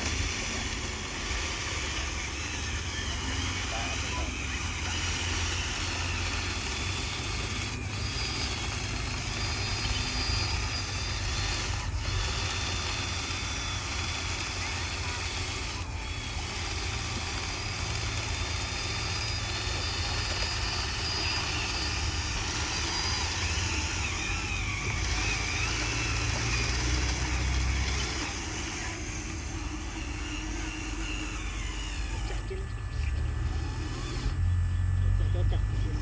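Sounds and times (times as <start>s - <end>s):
radio-controlled truck running: 0.0s - 36.0s.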